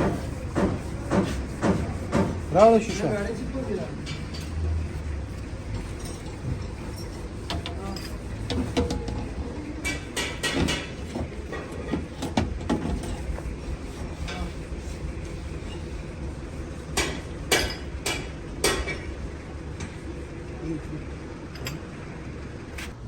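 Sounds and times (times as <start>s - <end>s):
sharp knocks and clicks: 0.0s - 2.4s, 7.4s - 13.2s.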